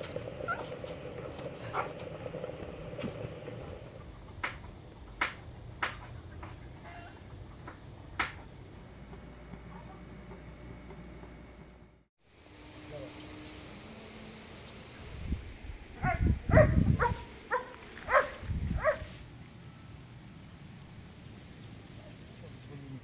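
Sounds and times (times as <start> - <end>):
insects trilling: 0.0 - 11.8.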